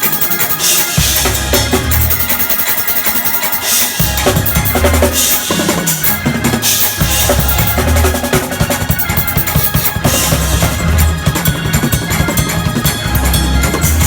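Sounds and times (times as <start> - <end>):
low bass notes: 1.1 - 2.2, 4.0 - 5.2, 6.2 - 9.2, 10.0 - 14.0
snare and bass drum strokes: 3.6 - 12.0.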